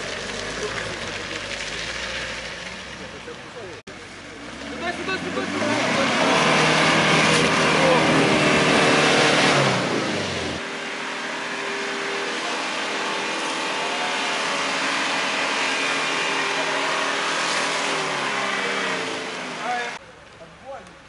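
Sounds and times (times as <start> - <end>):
suv engine revving hard: 4.4 - 20.0.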